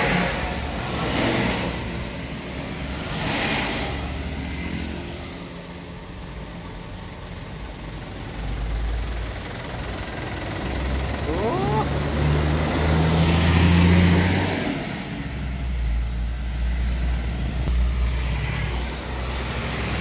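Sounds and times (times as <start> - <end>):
heavy trucks idling: 5.5 - 13.0.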